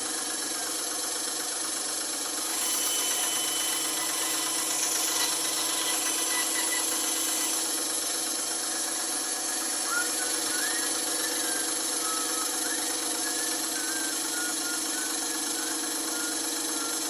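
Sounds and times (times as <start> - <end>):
bandsaw running: 0.0 - 17.0.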